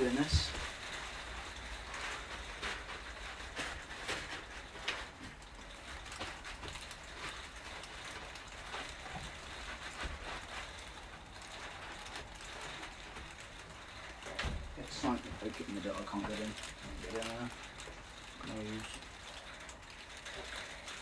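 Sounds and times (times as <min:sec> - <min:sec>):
blanket rustling: 0:00.0 - 0:05.2.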